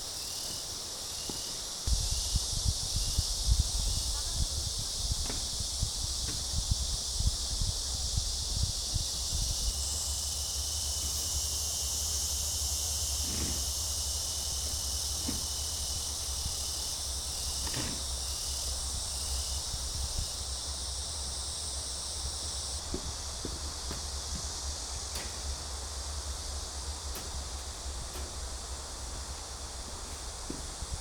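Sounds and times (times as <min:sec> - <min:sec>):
insects chorus: 0:00.0 - 0:31.0
wind rumble on microphone: 0:01.9 - 0:11.7, 0:12.4 - 0:21.2.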